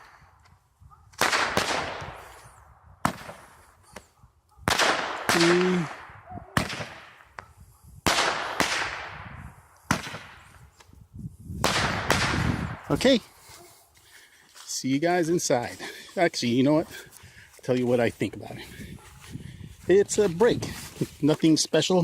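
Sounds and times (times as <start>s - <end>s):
firework bangs with echo: 8.0s - 10.5s.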